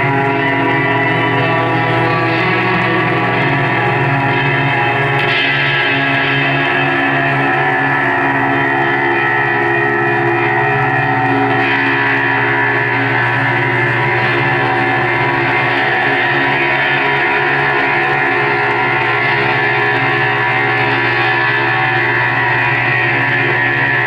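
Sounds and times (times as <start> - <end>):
live band droning music: 0.0 - 10.3
guitar: 0.0 - 24.0.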